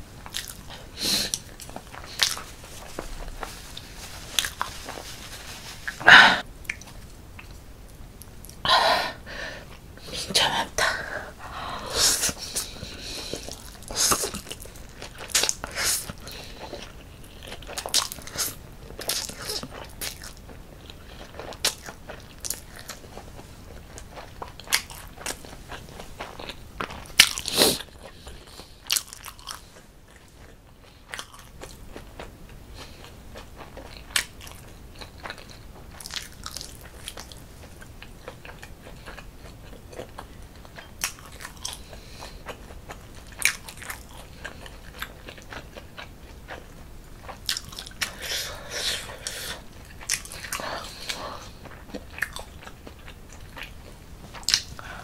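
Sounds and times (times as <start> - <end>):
chewing with wet mouth clicks: 6.6 - 7.6, 19.0 - 48.3, 49.1 - 54.8.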